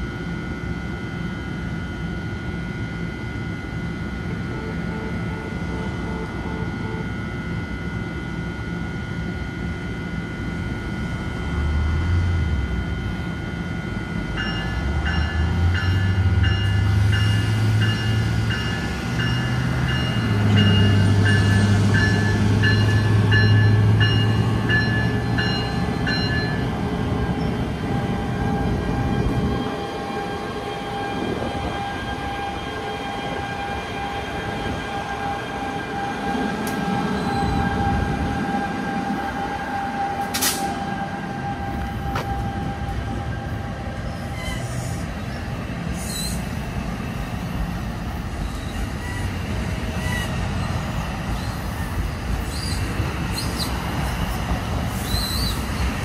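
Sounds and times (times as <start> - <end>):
locomotive hum: 0.0 - 56.0
train rolling rumble: 0.0 - 56.0
locomotive bell ringing: 14.0 - 30.5.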